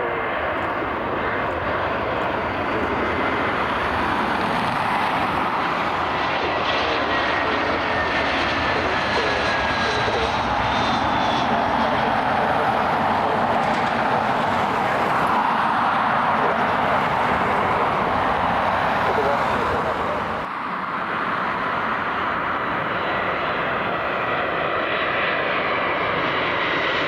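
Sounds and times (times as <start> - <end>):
airliner engines roaring: 0.0 - 27.0
high engine whine: 0.0 - 27.0.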